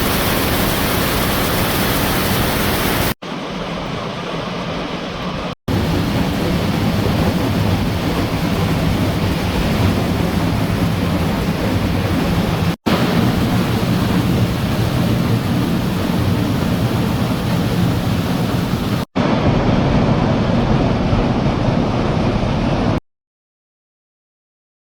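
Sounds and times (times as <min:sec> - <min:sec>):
waterfall roaring: 0:00.0 - 0:19.3.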